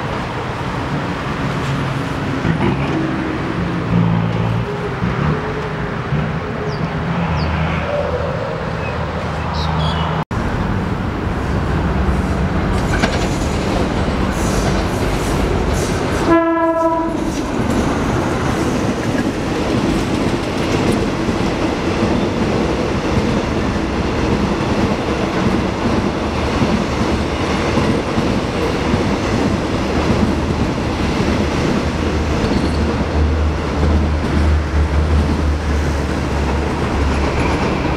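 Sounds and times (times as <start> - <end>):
train wheels rumbling and rattling: 10.4 - 37.9
train horn blast: 16.2 - 17.4.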